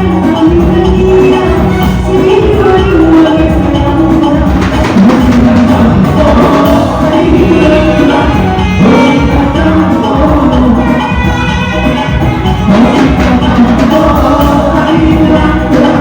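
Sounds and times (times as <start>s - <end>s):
live band playing dance music: 0.0s - 16.0s
person singing: 0.0s - 16.0s.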